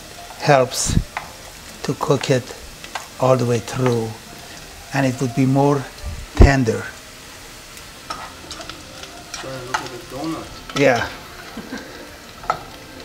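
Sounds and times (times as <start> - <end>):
patties sizzling in oil: 0.0 - 13.0
utensil clicking on pan: 1.1 - 4.7, 7.7 - 13.0.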